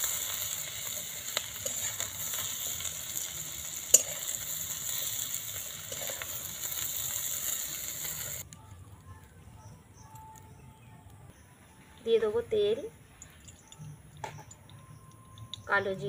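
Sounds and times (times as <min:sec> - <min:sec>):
vegetables sizzling in hot oil: 0:00.0 - 0:08.4
metal spatula clinking on pan: 0:03.8 - 0:04.4.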